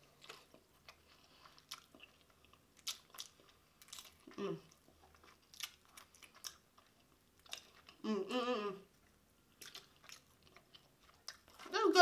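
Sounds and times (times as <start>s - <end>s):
chewing and lip smacks: 0.0s - 8.0s, 8.9s - 11.8s
person humming mm: 8.0s - 8.9s.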